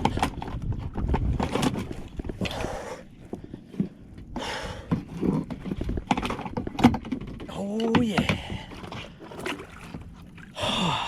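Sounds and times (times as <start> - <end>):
man breathing hard: 2.4 - 3.6, 4.3 - 5.0, 10.5 - 11.0.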